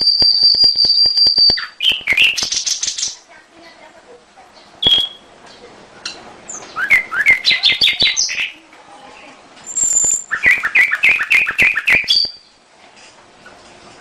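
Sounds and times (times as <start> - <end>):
canary singing: 0.0 - 3.3, 4.6 - 5.3, 6.5 - 12.6.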